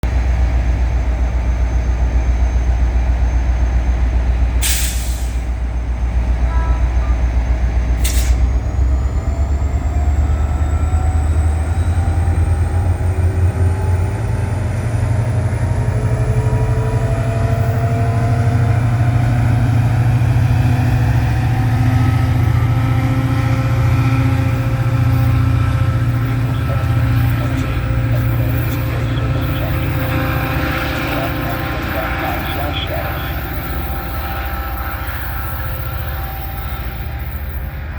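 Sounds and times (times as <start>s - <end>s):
diesel locomotive engine throbbing: 0.0s - 37.9s
air hiss blasts: 4.6s - 5.4s
rising whining tones: 20.8s - 37.9s.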